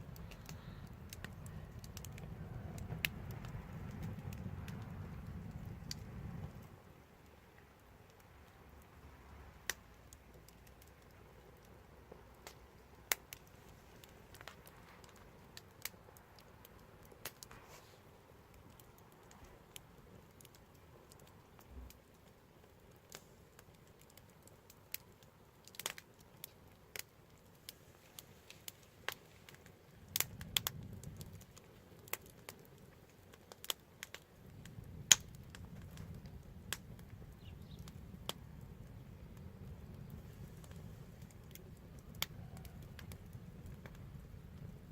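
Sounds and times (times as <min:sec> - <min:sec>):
low rumble: 0:00.0 - 0:06.8
faint low hiss: 0:00.0 - 0:44.9
wood fire crackling: 0:00.0 - 0:44.9.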